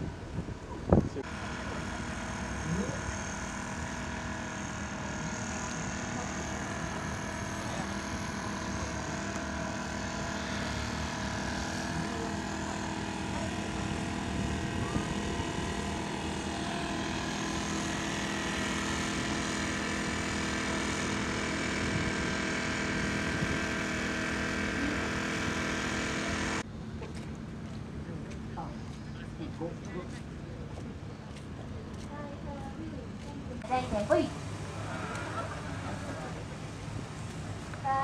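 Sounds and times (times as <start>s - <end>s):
car engine idling: 1.2s - 26.6s.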